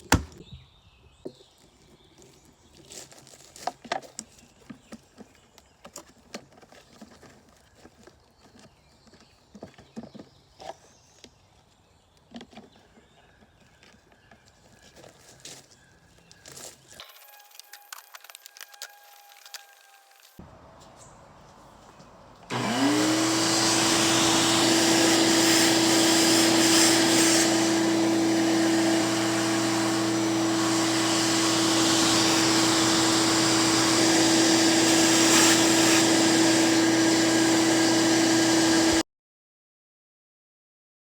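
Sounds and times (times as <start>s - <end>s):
shop vacuum motor whining: 22.5s - 39.0s.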